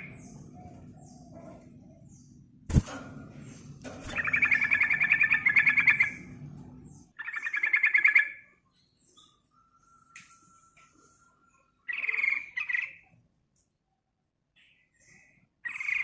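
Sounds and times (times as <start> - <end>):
bulbul rattling chatter calls: 3.4 - 6.3.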